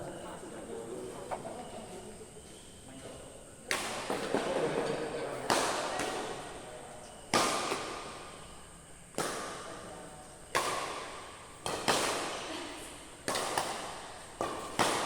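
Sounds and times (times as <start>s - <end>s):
sharp impacts echoing: 7.2s - 9.8s.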